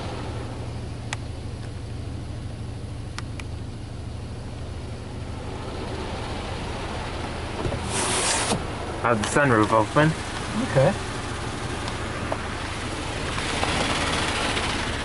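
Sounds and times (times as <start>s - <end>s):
low mechanical hum: 0.0s - 9.1s
loud burst of hiss: 7.8s - 8.6s.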